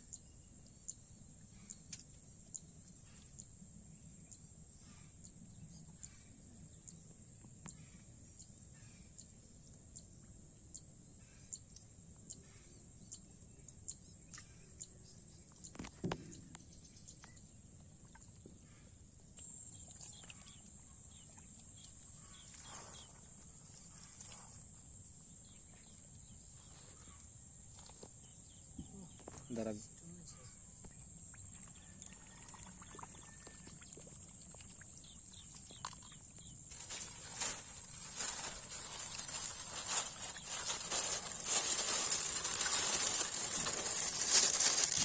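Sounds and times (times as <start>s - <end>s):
high insect shrill: 36.7s - 45.0s.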